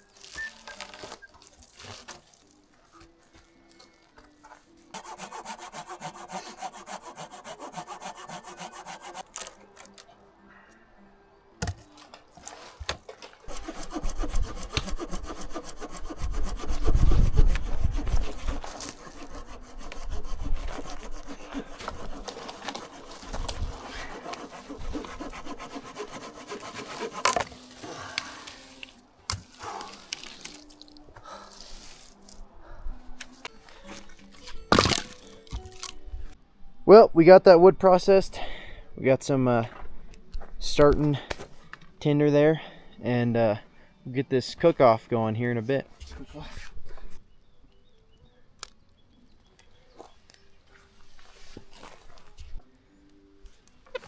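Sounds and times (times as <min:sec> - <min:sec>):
hand saw cutting wood: 0:04.4 - 0:10.0, 0:12.4 - 0:32.4, 0:33.7 - 0:36.0.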